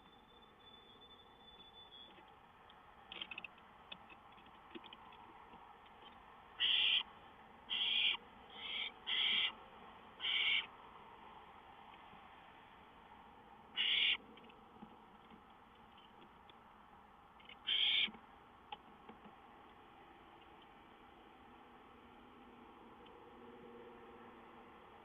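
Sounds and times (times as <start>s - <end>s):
barn owl hissing screeches: 6.6s - 7.1s, 7.7s - 9.6s, 10.2s - 10.7s, 13.8s - 14.2s, 17.6s - 18.1s.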